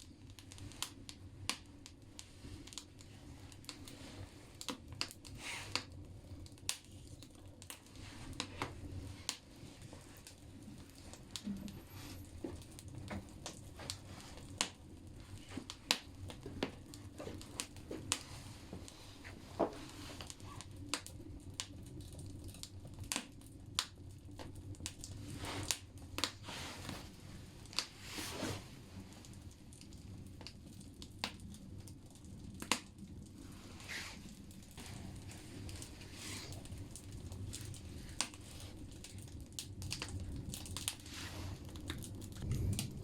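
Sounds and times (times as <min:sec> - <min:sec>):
low fire rumble: 0:00.0 - 0:43.0
wood fire crackling and popping: 0:00.0 - 0:43.0.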